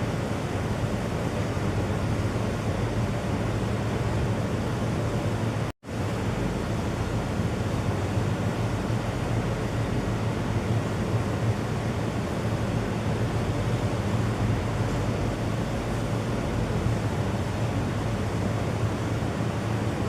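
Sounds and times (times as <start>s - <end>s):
steady rushing noise: 9.2s - 20.0s.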